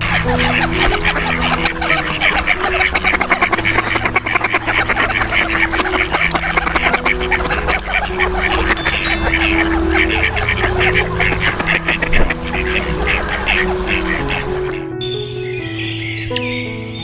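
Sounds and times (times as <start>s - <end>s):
flock of ducks quacking: 0.0s - 15.0s.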